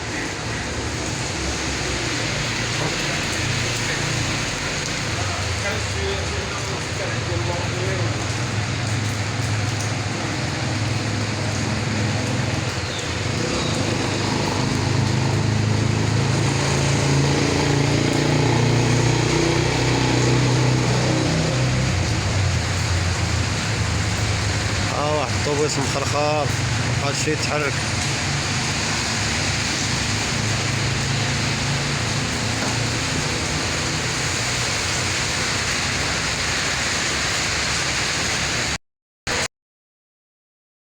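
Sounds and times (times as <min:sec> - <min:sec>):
heavy rain falling: 0:00.0 - 0:39.5.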